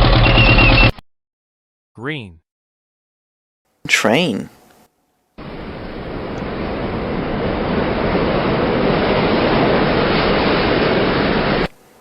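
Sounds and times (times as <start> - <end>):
train rumbling: 5.4 - 11.8.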